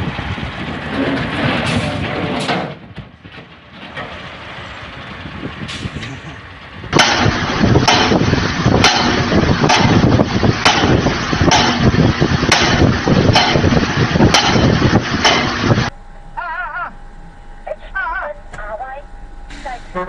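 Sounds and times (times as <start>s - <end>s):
heavy vehicle noise: 0.0s - 20.0s
rough noise with sharp knocks: 6.9s - 15.9s.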